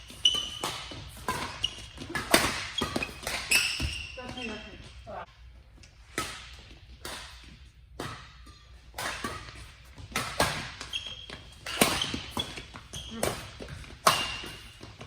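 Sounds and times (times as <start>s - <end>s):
rackets striking shuttlecock: 0.0s - 4.0s, 6.0s - 10.9s, 11.5s - 14.9s
shoe squeaks on court floor: 0.0s - 4.8s, 10.5s - 15.0s.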